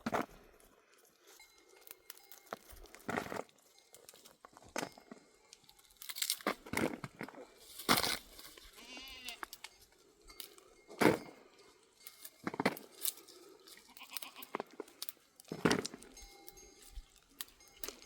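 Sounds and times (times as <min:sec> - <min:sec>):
livestock bleating: 0:08.7 - 0:09.6, 0:13.7 - 0:14.6.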